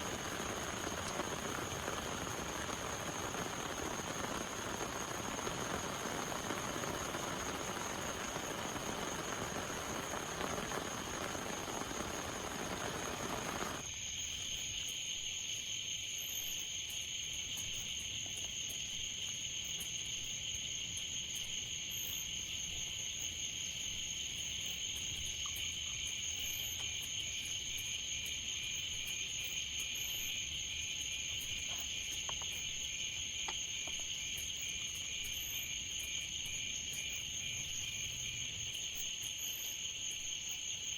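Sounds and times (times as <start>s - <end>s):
heavy rain hissing: 0.0s - 13.8s
insect pulsing chirp: 0.0s - 13.9s
crickets trilling: 0.0s - 40.9s.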